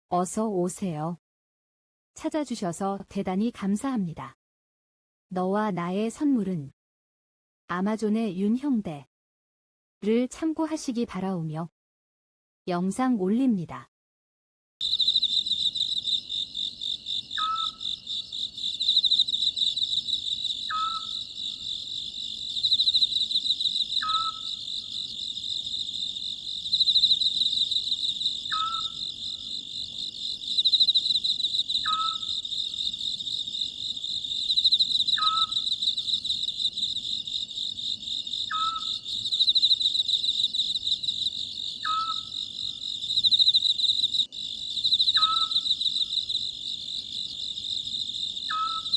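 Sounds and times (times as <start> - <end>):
crickets chirring: 14.8 - 48.9
owl calling two-part note: 17.4 - 17.8, 20.7 - 21.2, 24.0 - 24.5, 28.5 - 29.0, 31.8 - 32.3, 38.5 - 38.9, 41.8 - 42.3, 48.5 - 48.9.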